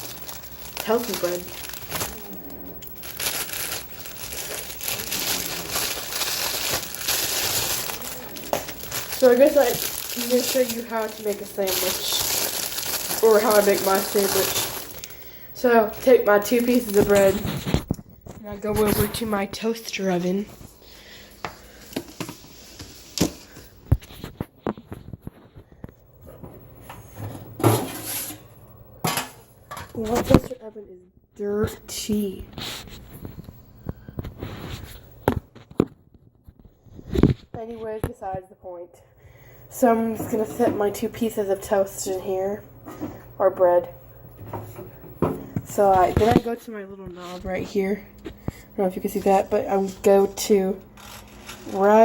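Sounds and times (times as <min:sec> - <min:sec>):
plastic bag crinkling: 0:00.0 - 0:19.4, 0:49.2 - 0:52.0.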